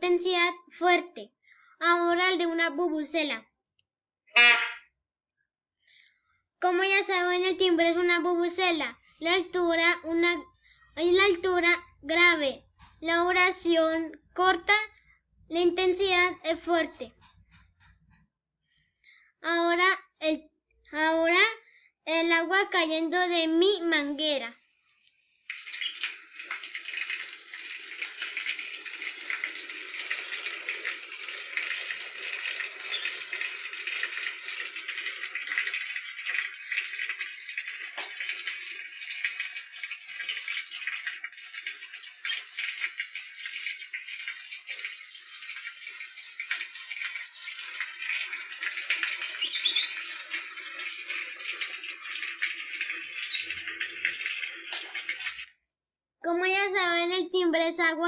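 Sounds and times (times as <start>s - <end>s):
water pouring from hose: 25.4s - 55.5s.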